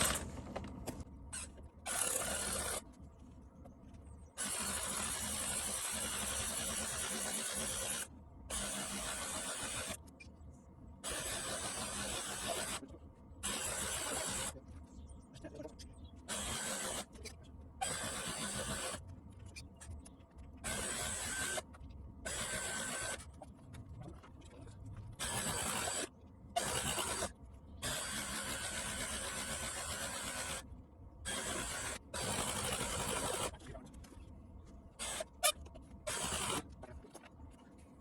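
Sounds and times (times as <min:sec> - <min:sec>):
electric fuel pump whirring: 0:00.0 - 0:03.0, 0:04.4 - 0:10.2, 0:11.0 - 0:14.6, 0:16.3 - 0:19.1, 0:20.6 - 0:23.4, 0:25.1 - 0:33.7, 0:35.0 - 0:36.8.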